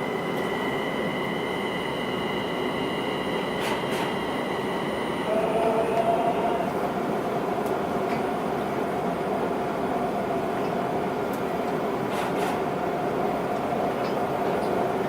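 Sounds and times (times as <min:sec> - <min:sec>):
high whine tones: 0:00.0 - 0:06.8
low two-tone whine: 0:00.0 - 0:07.2
maglev train hum: 0:00.0 - 0:15.0.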